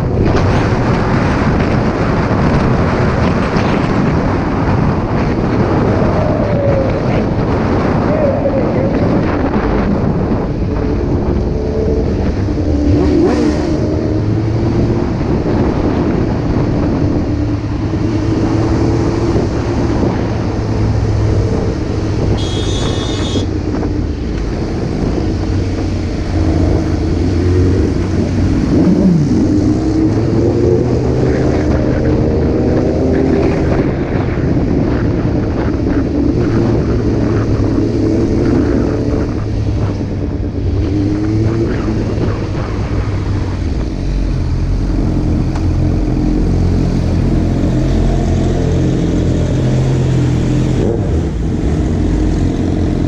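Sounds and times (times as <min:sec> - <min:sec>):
motorcycle engines revving: 0:00.0 - 0:53.0
brief high-pitched tone: 0:22.4 - 0:23.4.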